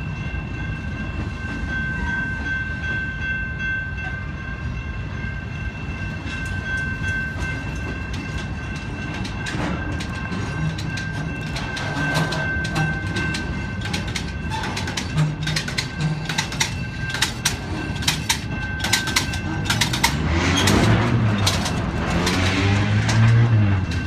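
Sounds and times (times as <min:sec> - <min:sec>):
freight train wheels rumbling: 0:00.0 - 0:24.0
sharp wheel clicks on rails: 0:08.1 - 0:24.0.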